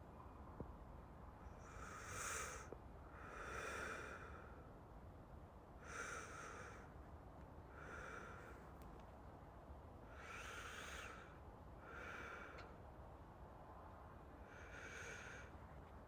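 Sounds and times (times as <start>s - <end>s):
man breathing deeply: 1.6s - 4.7s, 5.8s - 6.9s, 7.7s - 8.6s, 10.1s - 12.7s, 14.5s - 15.6s.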